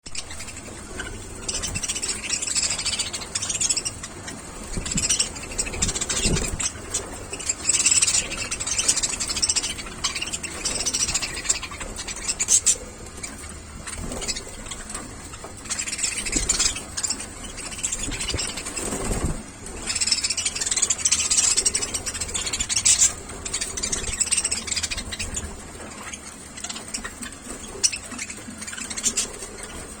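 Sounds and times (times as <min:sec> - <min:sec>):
budgerigars chirping and chattering: 0:00.1 - 0:30.0.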